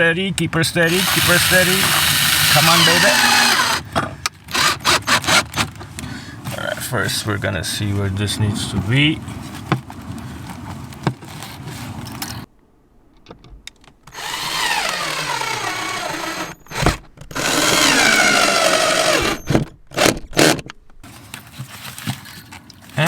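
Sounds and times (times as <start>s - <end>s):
power drill running: 0.8s - 5.6s, 14.1s - 20.6s.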